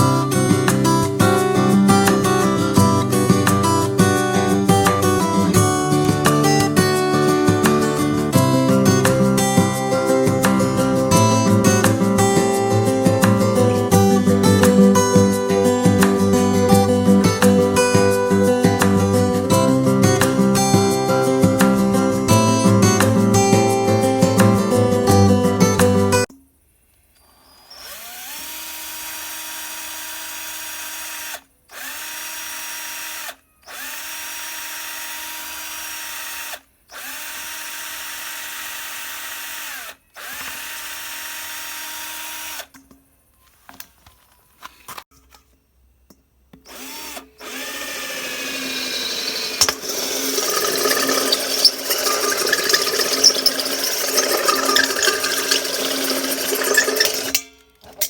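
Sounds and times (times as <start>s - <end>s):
electric drill running: 27.3s - 42.7s, 46.7s - 57.4s.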